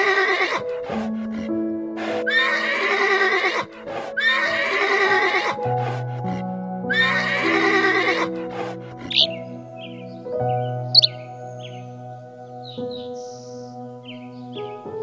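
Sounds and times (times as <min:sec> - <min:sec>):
horse whinnying: 0:00.0 - 0:01.0, 0:02.3 - 0:05.6, 0:06.9 - 0:08.4
background music with held notes: 0:00.0 - 0:15.0.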